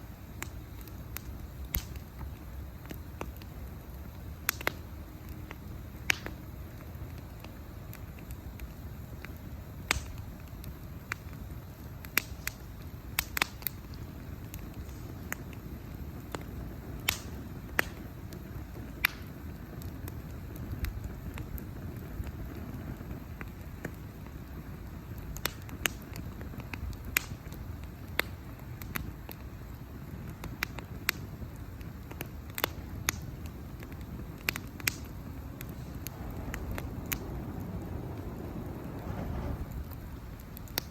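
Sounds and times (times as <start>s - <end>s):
bonfire crackling: 0.0s - 40.9s
low steady rumble: 32.0s - 40.9s.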